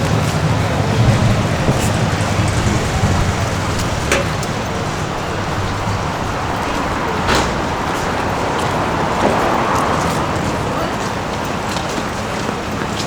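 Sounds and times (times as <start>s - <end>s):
traffic noise: 0.0s - 13.0s.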